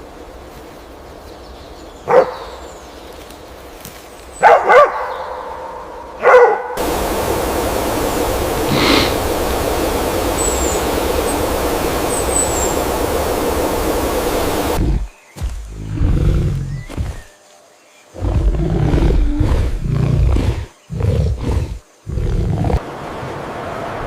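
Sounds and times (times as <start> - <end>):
steady rushing noise: 6.8 - 15.1.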